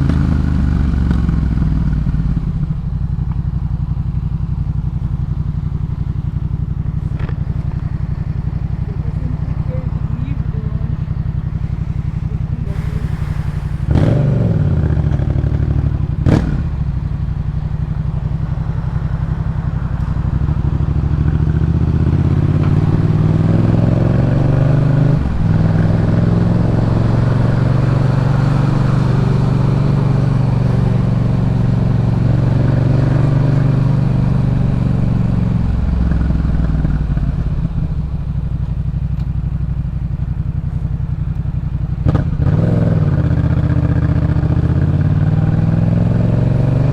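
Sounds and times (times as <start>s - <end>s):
exhaust cracks: 0.0s - 21.3s
motorcycle engine revving: 0.0s - 46.9s.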